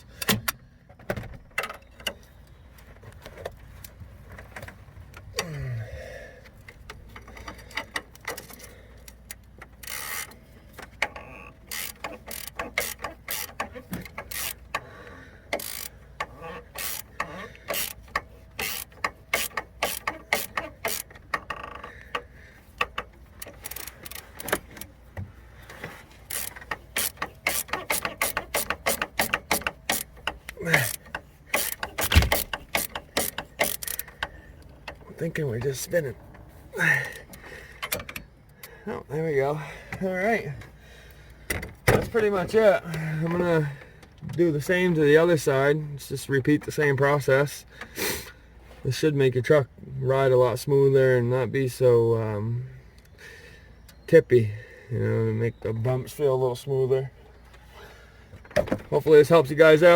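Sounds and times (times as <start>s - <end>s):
hand ratchet clicking: 6.6s - 25.0s, 26.2s - 35.0s.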